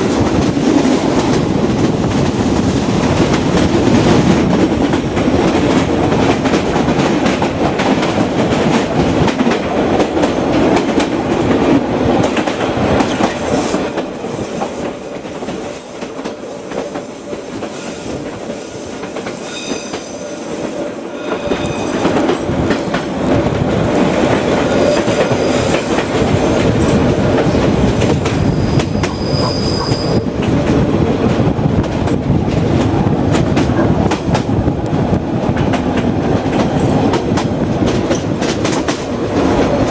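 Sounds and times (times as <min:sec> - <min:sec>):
train wheels clattering over rails: 0:00.0 - 0:39.9
high-pitched squeals: 0:19.4 - 0:22.4.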